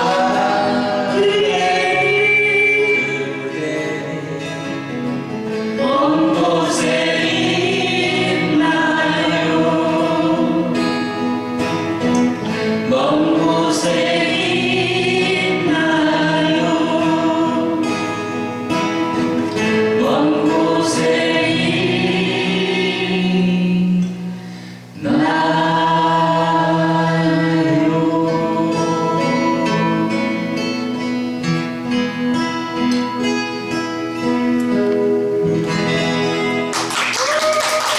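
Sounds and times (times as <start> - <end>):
several voices singing: 0.0 - 4.7, 5.8 - 11.4, 12.1 - 18.4, 19.6 - 24.3, 25.0 - 30.7
strummed acoustic guitar: 0.0 - 37.0.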